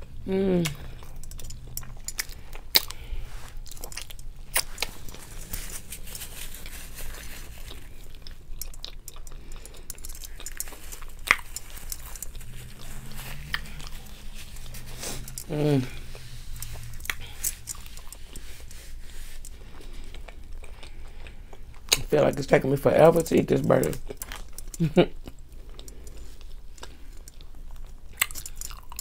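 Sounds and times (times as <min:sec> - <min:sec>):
sharp mouth clicks: 0:00.6 - 0:03.0
wet chewing clicks and smacks: 0:00.6 - 0:29.0.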